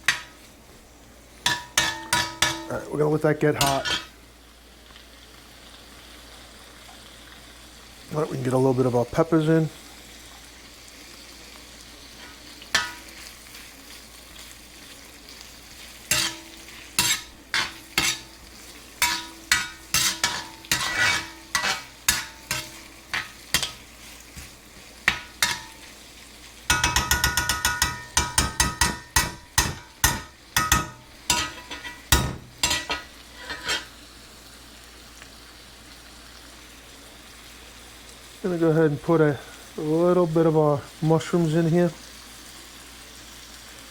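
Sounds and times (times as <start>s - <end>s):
vegetables sizzling in oil: 0.0s - 43.9s
utensil scraping a pan: 1.4s - 2.9s, 3.6s - 4.1s, 12.1s - 13.6s, 15.7s - 25.9s, 26.7s - 34.0s.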